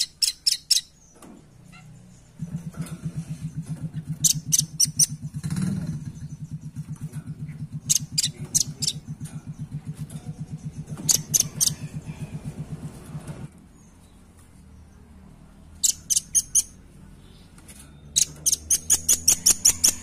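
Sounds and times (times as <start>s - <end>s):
low pulsing hum: 1.5s - 13.5s.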